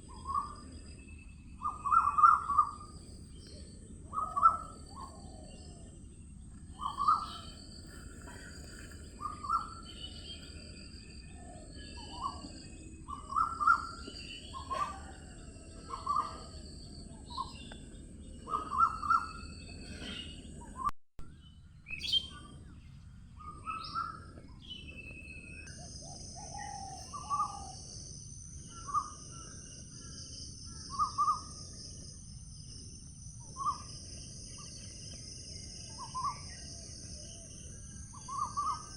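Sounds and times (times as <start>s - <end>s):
insect hiss: 0.0s - 20.4s, 24.0s - 38.9s
birds calling: 0.1s - 20.9s, 33.6s - 38.9s.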